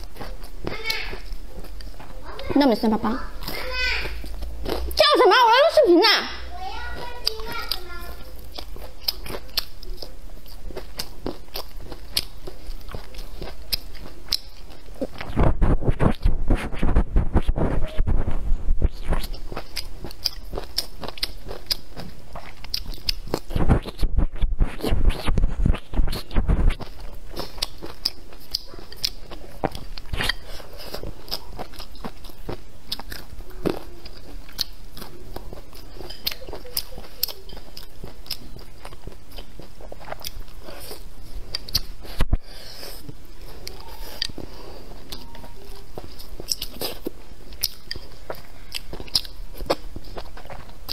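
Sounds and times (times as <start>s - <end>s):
chewing and wet mouth clicks: 7.0s - 15.4s, 19.0s - 24.0s, 24.8s - 42.2s, 46.0s - 50.9s.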